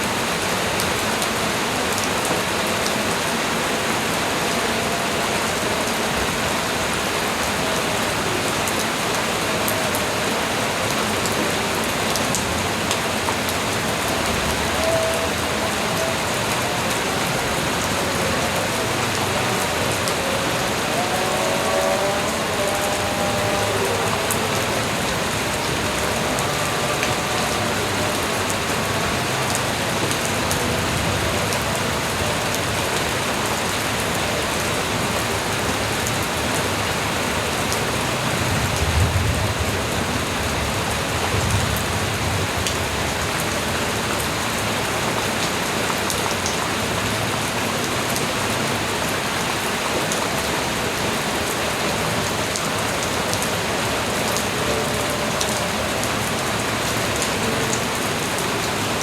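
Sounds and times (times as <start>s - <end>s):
light rain falling: 0.0s - 59.0s.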